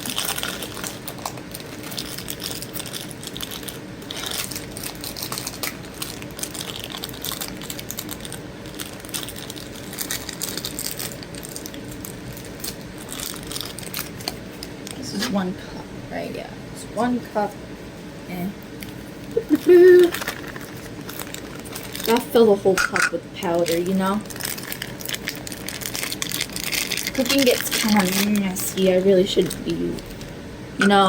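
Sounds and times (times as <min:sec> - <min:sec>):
measuring cups clicking and rattling: 0:22.0 - 0:23.2.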